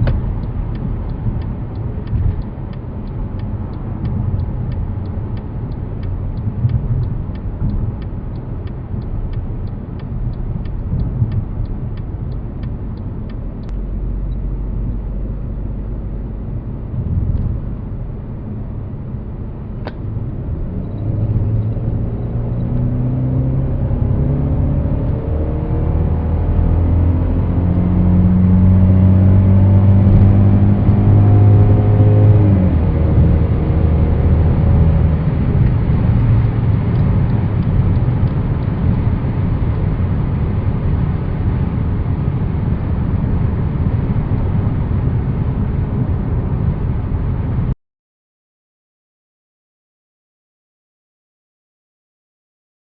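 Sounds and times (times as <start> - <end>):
car engine accelerating: 0.0 - 47.7
tyre and wind noise: 28.4 - 47.4.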